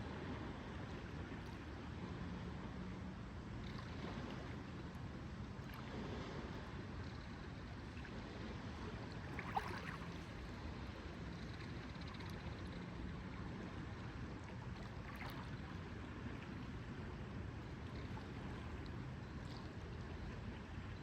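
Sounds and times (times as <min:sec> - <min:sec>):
wind: 0:00.0 - 0:21.0
lake water washing: 0:07.8 - 0:11.2, 0:14.5 - 0:17.4.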